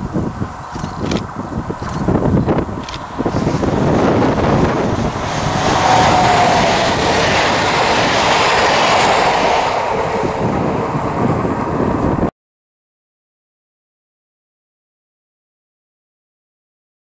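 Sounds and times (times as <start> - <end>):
train passing at speed: 0.0 - 12.3.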